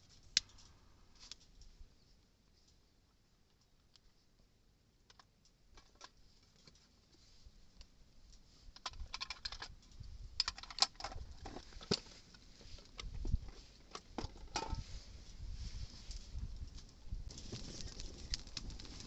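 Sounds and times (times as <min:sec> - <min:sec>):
light clicks and crackles: 0:00.0 - 0:19.0
wind rumble on microphone: 0:08.9 - 0:10.5, 0:13.0 - 0:13.5, 0:14.6 - 0:19.0.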